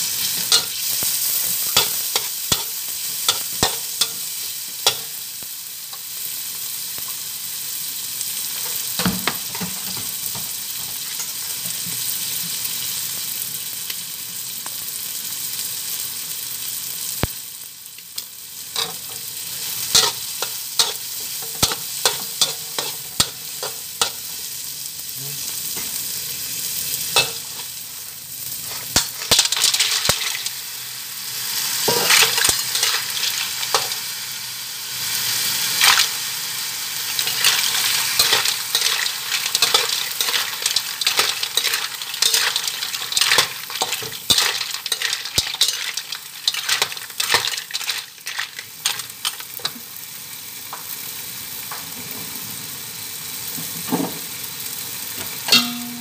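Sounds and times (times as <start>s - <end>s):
vegetables sizzling in hot oil: 0.0s - 56.0s
metal spatula scraping a wok: 18.8s - 24.4s, 31.9s - 34.0s, 37.2s - 49.7s
mussel shells clattering into wok: 19.9s - 24.2s, 28.9s - 30.6s, 31.9s - 34.0s, 37.2s - 49.8s.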